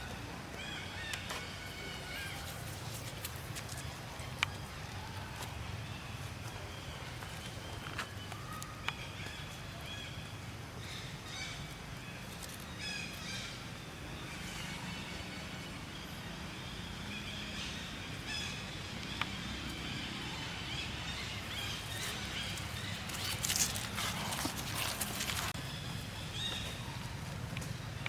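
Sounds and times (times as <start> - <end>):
scratchy rustling: 21.8 - 25.6.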